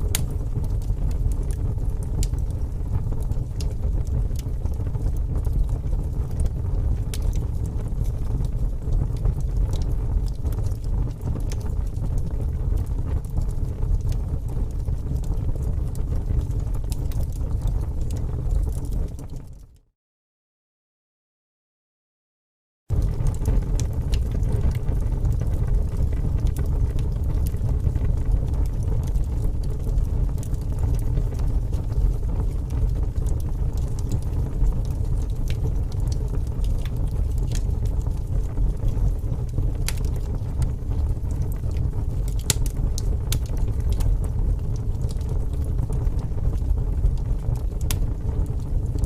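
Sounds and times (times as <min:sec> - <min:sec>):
fire rumbling with crackles and pops: 0:00.0 - 0:19.8, 0:22.9 - 0:49.0.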